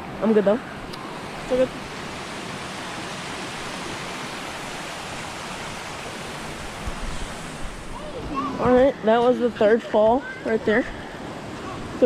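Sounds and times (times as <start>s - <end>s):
waterfall rushing water hiss: 0.6s - 9.2s.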